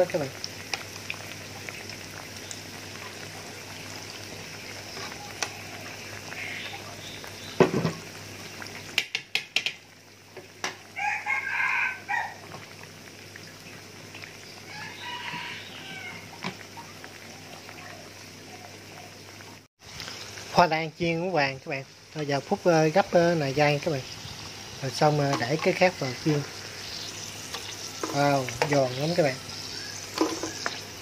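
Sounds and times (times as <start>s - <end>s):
food frying in hot oil: 0.0s - 31.0s
bird calling: 2.4s - 7.7s, 25.8s - 31.0s.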